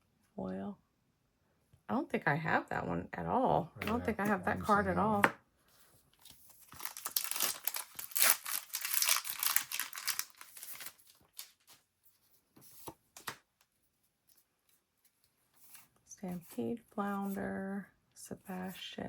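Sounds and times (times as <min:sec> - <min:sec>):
foil pack tearing and crinkling: 0:06.6 - 0:11.7.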